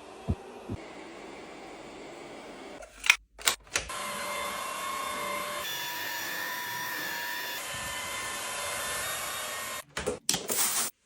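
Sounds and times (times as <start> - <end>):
vacuum cleaner motor whine: 0.0 - 2.8, 3.9 - 9.8.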